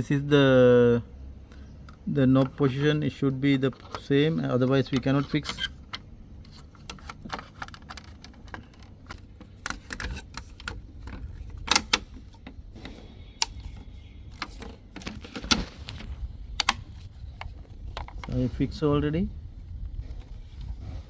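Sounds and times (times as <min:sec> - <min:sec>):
plastic clicks and knocks: 0:03.7 - 0:18.4.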